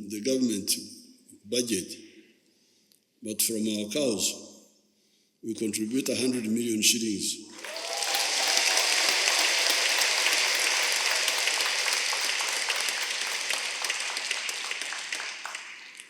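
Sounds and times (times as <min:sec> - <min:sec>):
crowd applauding: 0:07.5 - 0:16.0.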